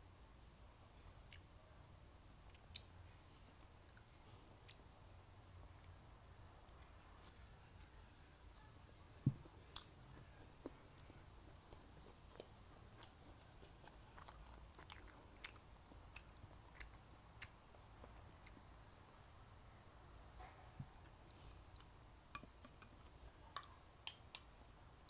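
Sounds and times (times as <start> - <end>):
person chewing food: 2.5 - 2.9, 3.6 - 5.0, 9.3 - 19.2, 21.0 - 23.1.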